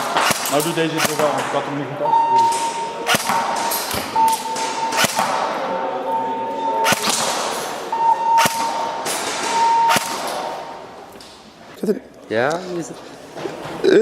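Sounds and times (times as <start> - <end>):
airsoft gun shots: 0.0 - 1.5, 3.0 - 5.6, 6.8 - 7.7, 8.4 - 10.8
high beep: 2.0 - 3.0, 4.0 - 7.0, 7.9 - 10.2.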